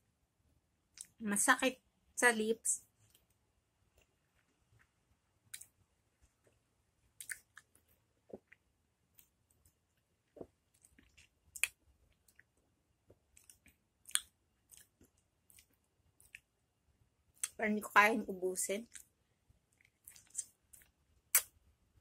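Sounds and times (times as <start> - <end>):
mouth clicks and lip smacks: 1.0 - 1.2, 5.5 - 5.8, 7.2 - 8.6, 10.4 - 12.5, 13.1 - 16.5, 19.7 - 21.6.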